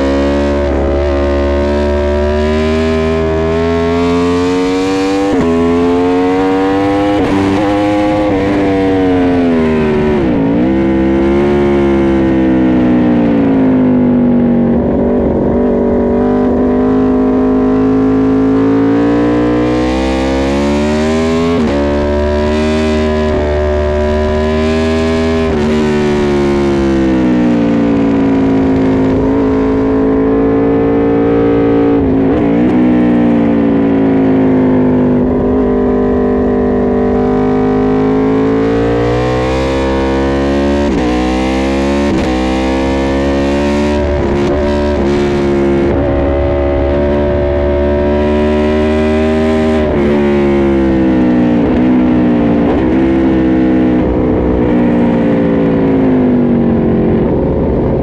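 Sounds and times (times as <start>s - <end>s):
motorcycle engine revving: 0.0s - 58.0s
wind rush: 53.9s - 58.0s.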